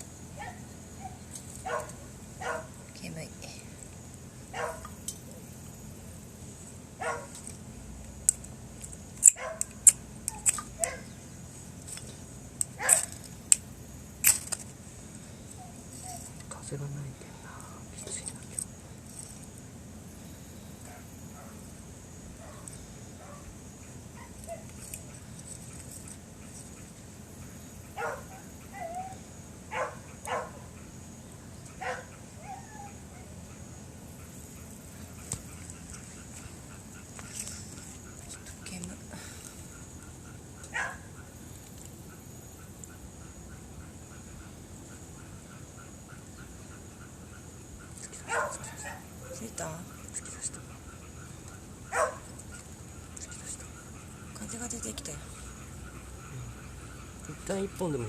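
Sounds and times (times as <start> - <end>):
dog whining: 0.4 - 2.7, 10.3 - 11.1, 15.5 - 16.4, 24.2 - 24.9, 28.0 - 30.7, 31.8 - 33.4, 48.0 - 51.1
dog barking: 0.4 - 2.8, 4.5 - 5.0, 7.0 - 7.4, 9.3 - 9.7, 10.4 - 11.1, 12.8 - 13.2, 22.4 - 23.5, 28.0 - 30.8, 31.8 - 33.3, 40.7 - 41.3, 48.2 - 49.8, 51.9 - 52.3.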